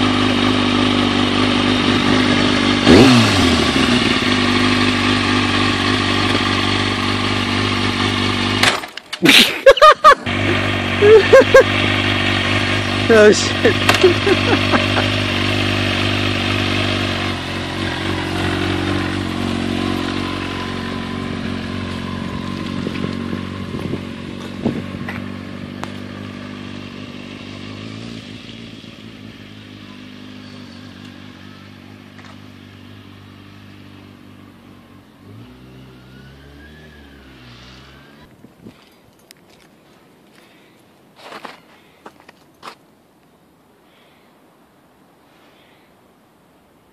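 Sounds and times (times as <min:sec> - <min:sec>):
motorcycle engine: 0:00.0 - 0:39.6
low wavering engine: 0:10.2 - 0:39.3.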